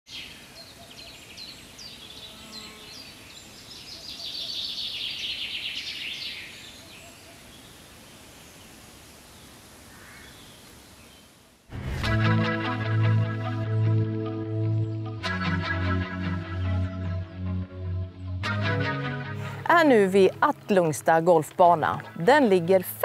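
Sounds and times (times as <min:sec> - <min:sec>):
faint background hiss: 0:00.1 - 0:11.7.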